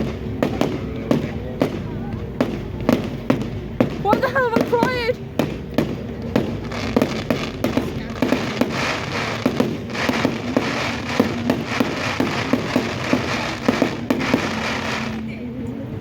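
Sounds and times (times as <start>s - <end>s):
fireworks bangs and cracks: 0.0s - 15.4s.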